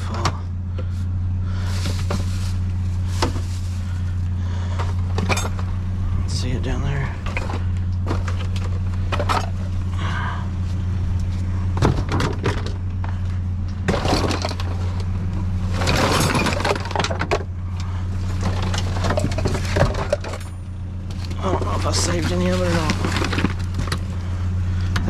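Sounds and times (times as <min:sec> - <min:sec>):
steady low hum: 0:00.0 - 0:25.0
junk clattering in dumpster: 0:01.4 - 0:05.8, 0:07.0 - 0:09.8, 0:11.7 - 0:24.2.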